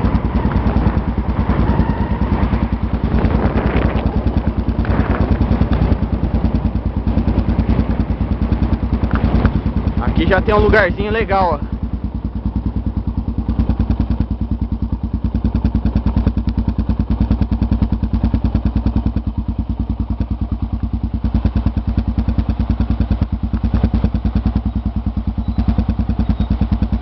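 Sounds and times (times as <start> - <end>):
motorcycle engine idling: 0.0 - 27.0
light knocks from motorcycle: 9.0 - 9.6.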